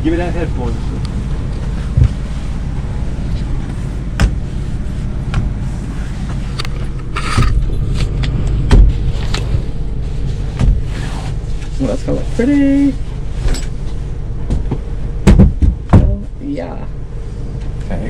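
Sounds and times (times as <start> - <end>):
steady low hum: 0.0 - 18.0
wooden headboard knocking: 14.6 - 16.2.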